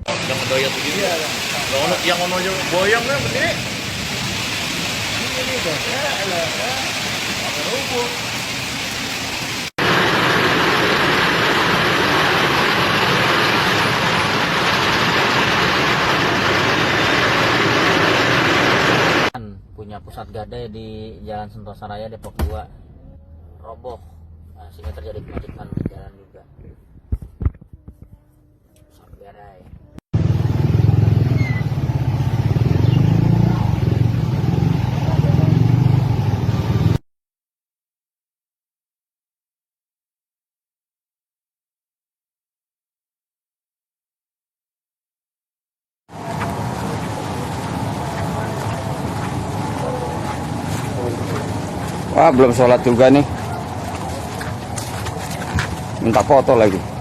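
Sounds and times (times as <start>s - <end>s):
vehicle engine rumbling: 29.8s - 37.0s, 46.1s - 57.0s.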